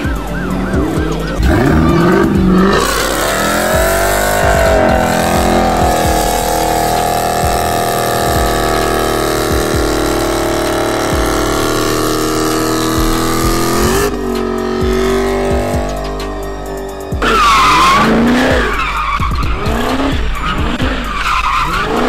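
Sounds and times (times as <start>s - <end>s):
car engine revving: 0.0s - 22.0s
tyres spinning: 1.4s - 16.5s.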